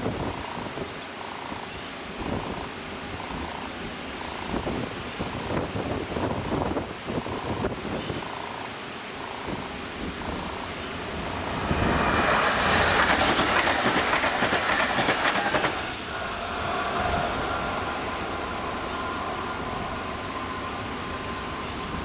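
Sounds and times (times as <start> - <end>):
train wheels clattering over rail joints: 11.9 - 16.0.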